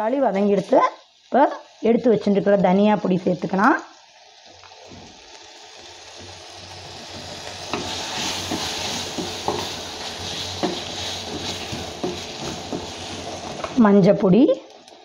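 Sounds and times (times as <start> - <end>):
vegetables sizzling in oil: 0.0 - 15.0
wooden spatula knocking on pan: 7.2 - 9.8, 10.6 - 13.8.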